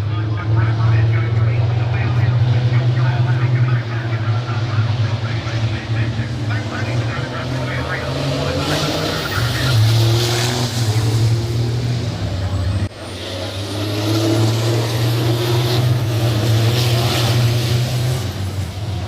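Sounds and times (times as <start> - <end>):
background voices: 0.0 - 13.6
diesel truck engines running: 0.0 - 19.0.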